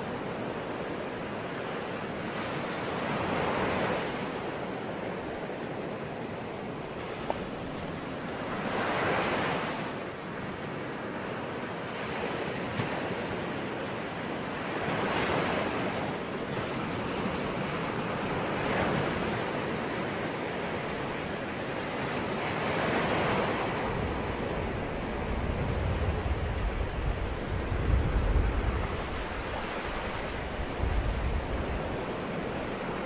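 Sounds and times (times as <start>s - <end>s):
ocean waves washing ashore: 0.0s - 33.0s.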